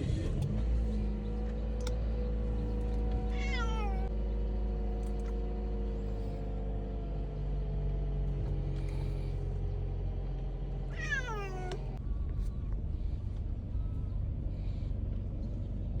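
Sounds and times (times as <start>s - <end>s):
moving car rumble: 0.0s - 16.0s
cat meowing: 3.3s - 4.1s, 10.9s - 11.9s.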